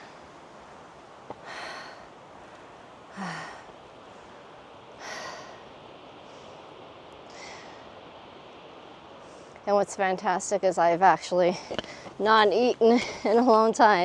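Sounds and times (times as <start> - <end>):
low hiss: 0.0 - 14.0
person breathing hard: 1.4 - 2.1, 3.1 - 3.7, 5.0 - 5.6.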